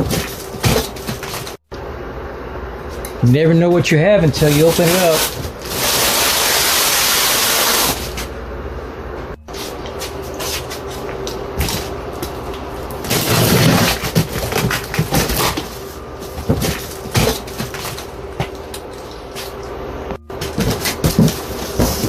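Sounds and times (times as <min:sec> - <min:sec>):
cardboard rustling and scraping: 0:09.5 - 0:12.4, 0:13.0 - 0:19.6, 0:20.3 - 0:22.0
knocks and thumps: 0:16.3 - 0:18.6, 0:20.2 - 0:22.0.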